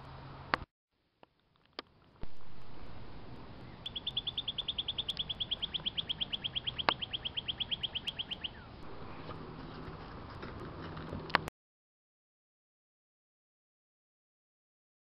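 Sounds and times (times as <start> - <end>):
bird trilling: 3.3 - 9.4.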